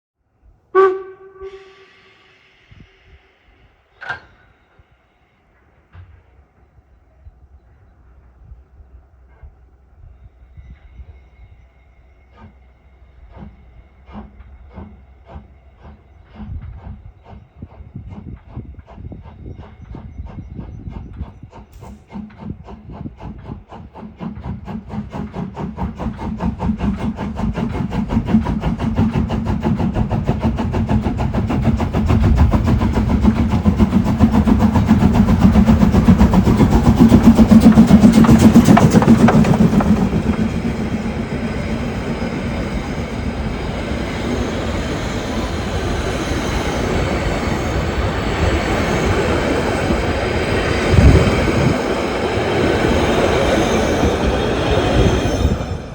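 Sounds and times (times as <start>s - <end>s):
steam locomotive exhaust beats: 0.6s - 55.9s
carriages rolling on rails: 15.4s - 55.9s.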